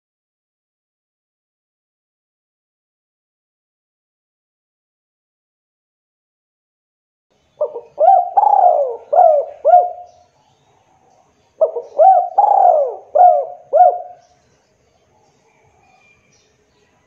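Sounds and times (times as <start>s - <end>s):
dove cooing: 7.6s - 10.2s, 11.6s - 14.2s.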